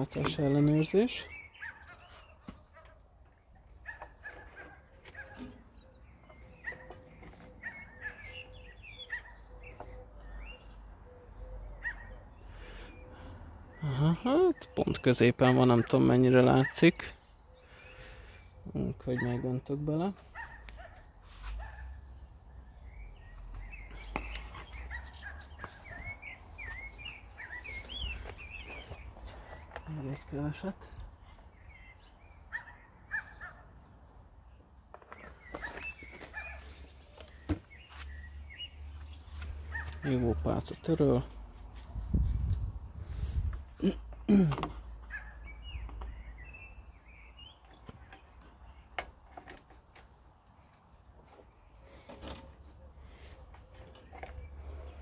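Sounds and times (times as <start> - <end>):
small bird chirping: 0.0 - 15.0, 20.4 - 33.5.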